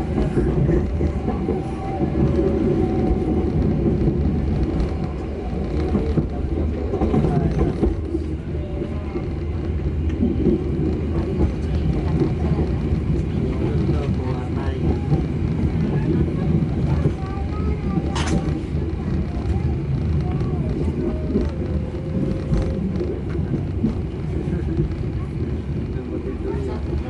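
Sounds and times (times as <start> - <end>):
train rumbling and rattling: 0.0 - 27.0.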